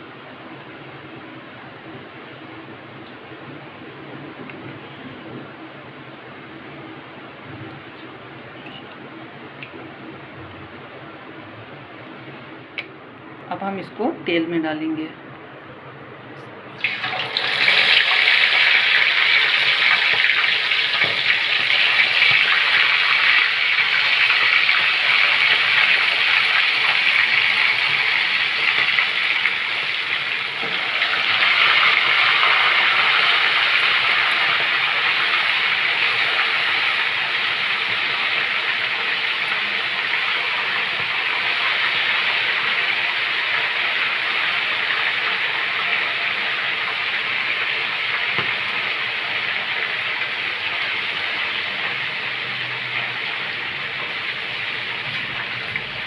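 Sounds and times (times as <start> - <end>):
chicken deep-frying in oil: 16.7 - 56.0.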